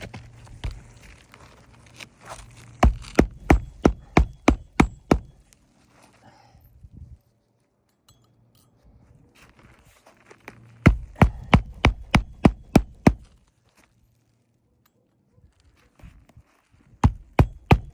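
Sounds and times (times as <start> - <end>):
hammer striking nail: 2.8 - 5.4, 10.9 - 13.3, 17.0 - 17.9.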